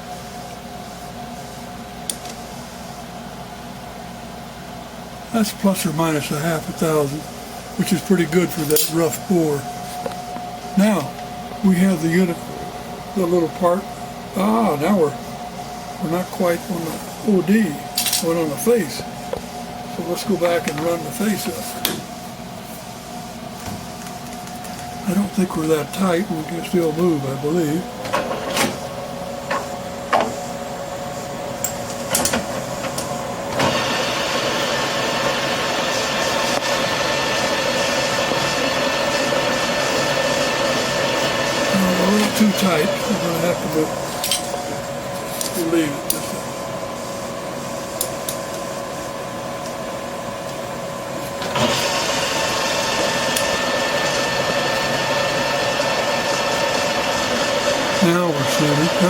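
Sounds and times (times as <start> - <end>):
lathe running with steady whir: 0.0 - 59.0
metal lathe whining: 31.6 - 46.2, 51.4 - 59.0.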